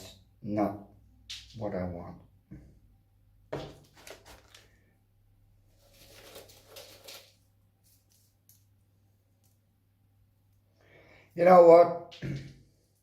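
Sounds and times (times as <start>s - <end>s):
potting mix rustling and crunching: 3.8s - 4.8s, 5.7s - 8.4s.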